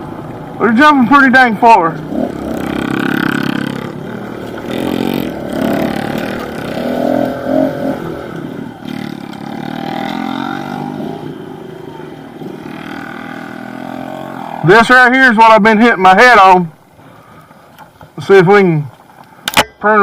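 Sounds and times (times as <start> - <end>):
motorbike engine revving: 1.9 - 14.9.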